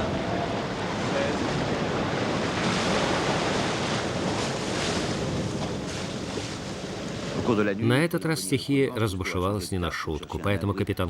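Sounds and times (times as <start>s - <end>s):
gusting wind: 0.0s - 7.9s
waves breaking: 0.0s - 10.6s.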